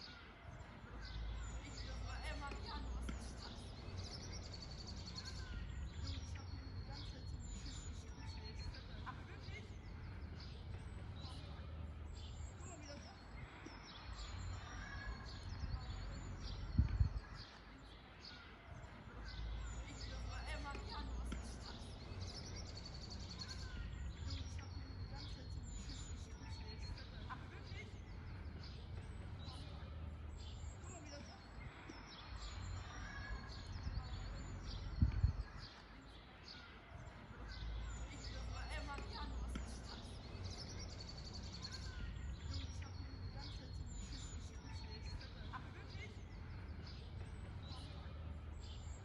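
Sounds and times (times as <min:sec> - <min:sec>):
birds chirping and calling: 0:00.0 - 0:49.0
dull low thumps: 0:15.5 - 0:17.3, 0:33.8 - 0:35.5.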